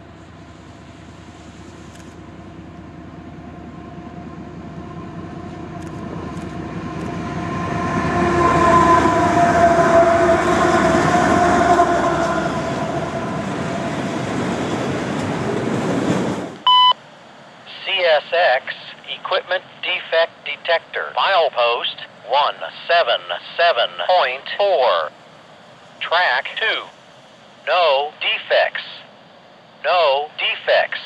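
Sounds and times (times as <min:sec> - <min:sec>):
freight train passing: 0:00.0 - 0:31.0
locomotive horn: 0:06.8 - 0:14.1
short radio tone: 0:17.7 - 0:25.1, 0:26.0 - 0:26.9, 0:27.7 - 0:29.1, 0:29.8 - 0:31.0.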